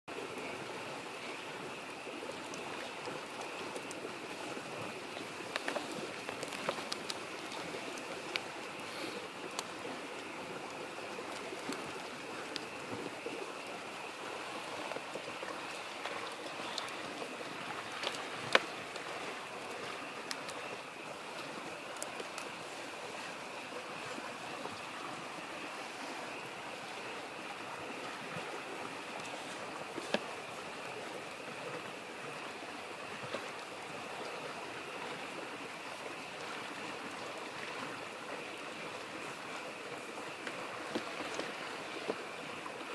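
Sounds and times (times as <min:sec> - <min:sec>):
frogs chorus: 0:00.1 - 0:42.9
stream rushing: 0:00.1 - 0:42.9
wood fire crackling: 0:00.3 - 0:25.0, 0:26.8 - 0:36.0
fire pops: 0:05.3 - 0:09.8.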